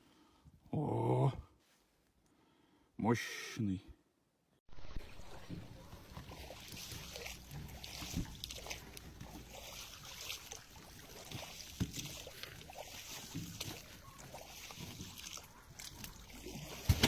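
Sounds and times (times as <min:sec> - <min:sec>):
water sloshing and splashing: 0:04.7 - 0:17.0.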